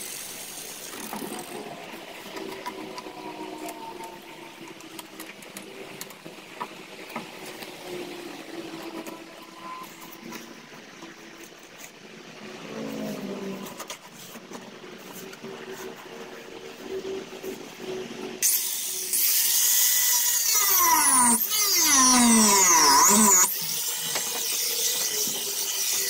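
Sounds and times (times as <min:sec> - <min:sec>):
power grinder whining: 0:18.5 - 0:26.0.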